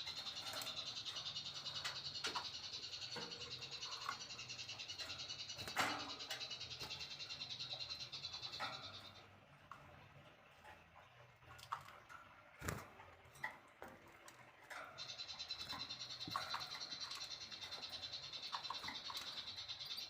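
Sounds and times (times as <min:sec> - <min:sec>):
bird chirps: 0:00.0 - 0:09.3, 0:14.7 - 0:20.0.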